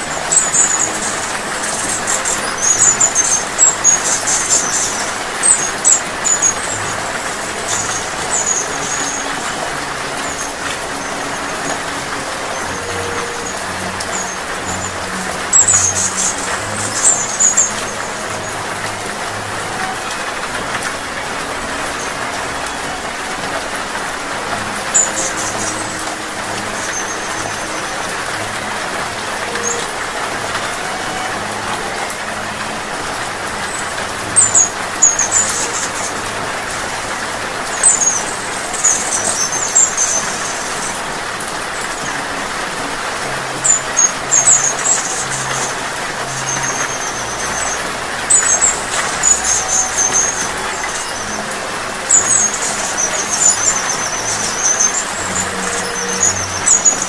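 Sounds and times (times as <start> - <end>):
hummingbird squeaky chirps: 0.0 - 20.2, 43.6 - 57.0
steady rain hiss: 0.0 - 57.0.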